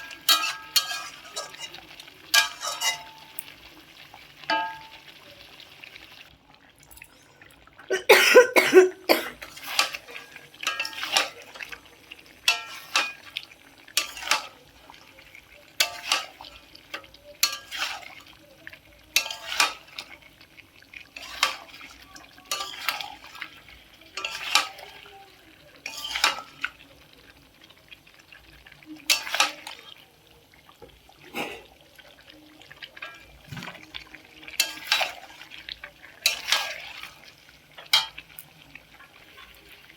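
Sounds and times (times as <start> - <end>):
spatula scraping metal pan: 0.0 - 3.3, 9.4 - 14.7, 15.8 - 18.4, 19.1 - 20.2, 21.0 - 25.1, 25.8 - 26.7, 29.1 - 29.8, 33.0 - 38.2.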